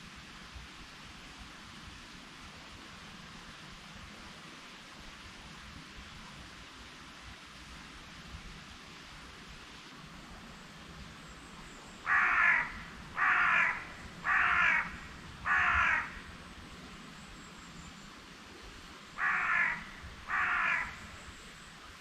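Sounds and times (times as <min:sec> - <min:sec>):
background hiss: 0:00.0 - 0:22.0
bird cawing: 0:12.0 - 0:16.3, 0:19.2 - 0:21.2.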